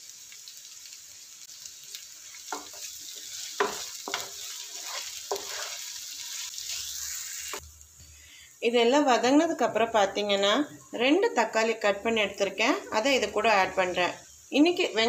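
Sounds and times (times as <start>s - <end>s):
food sizzling in hot oil: 0.0s - 15.0s
wooden spatula scraping a pan: 2.5s - 6.9s.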